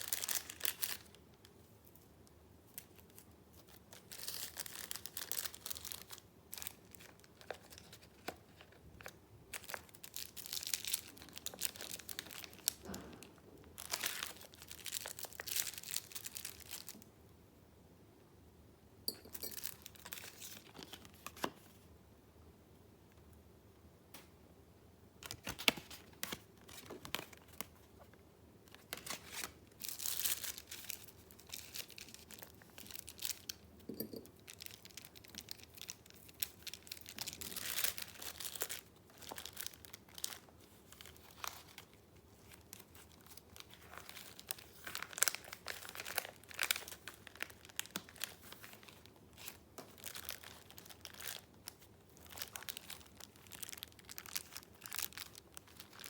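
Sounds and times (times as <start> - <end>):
paper rustling and crinkling: 2.8 - 17.0, 25.2 - 28.1, 28.7 - 33.5, 34.5 - 56.0.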